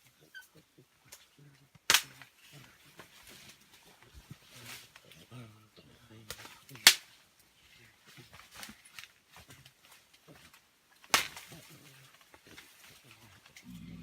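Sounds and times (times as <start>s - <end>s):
sharp cracks: 1.8s - 2.3s, 6.3s - 7.1s, 11.0s - 11.6s
faint low grunts: 13.6s - 14.0s.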